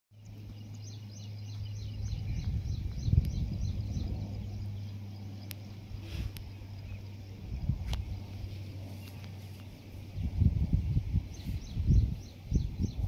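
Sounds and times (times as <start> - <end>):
bird chirping rapidly: 0.2 - 7.6, 10.1 - 13.0
steady low hum: 0.2 - 13.0.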